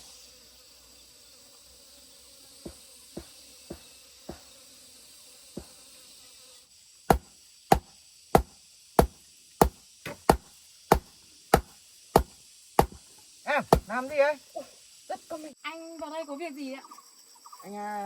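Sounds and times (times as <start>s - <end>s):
insects buzzing: 0.0s - 18.0s
loud chopping strikes: 7.1s - 13.0s, 13.6s - 14.0s.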